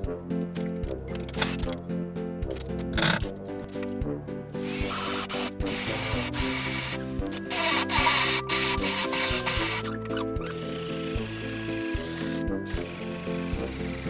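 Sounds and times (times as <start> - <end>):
background music with steady beat: 0.0 - 14.0
rasping hiss of power tool: 4.5 - 14.0.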